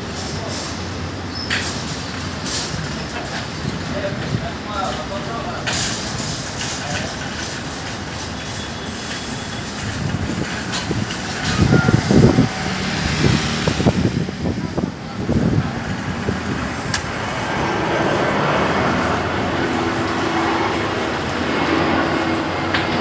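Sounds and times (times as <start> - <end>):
steady outdoor roar: 0.0 - 23.0
wind buffeting microphone: 9.5 - 23.0.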